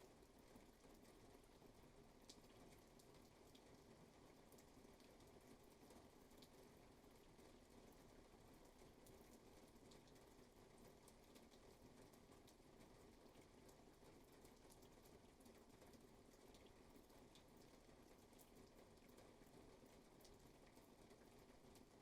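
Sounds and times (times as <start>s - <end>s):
faint rainfall: 0.0s - 22.0s.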